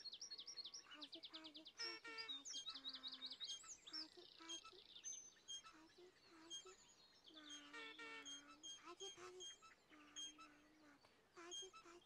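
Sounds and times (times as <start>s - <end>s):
faint birdsong chirps and trills: 0.0s - 12.0s.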